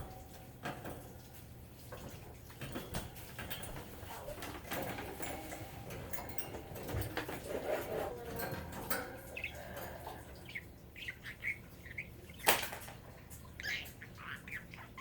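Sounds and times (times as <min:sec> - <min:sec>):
budgie chirping softly: 0:07.5 - 0:12.6, 0:13.2 - 0:15.0.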